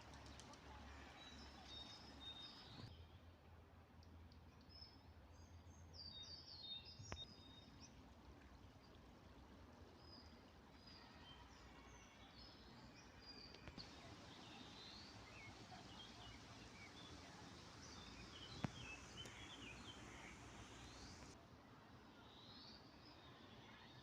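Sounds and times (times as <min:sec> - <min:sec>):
small birds chirping: 0:00.0 - 0:02.9, 0:12.4 - 0:21.4
low outdoor background: 0:00.0 - 0:24.0.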